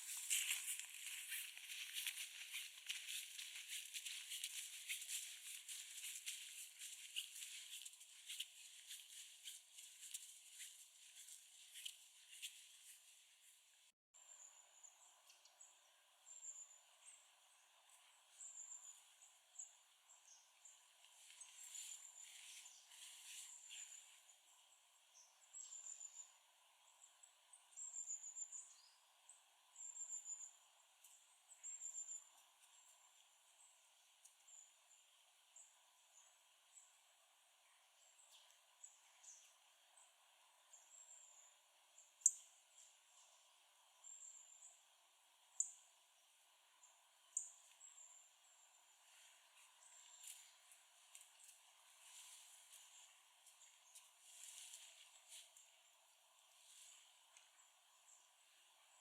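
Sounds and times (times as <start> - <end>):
soft rustling: 0.0 - 13.8, 21.0 - 24.3, 49.0 - 55.8.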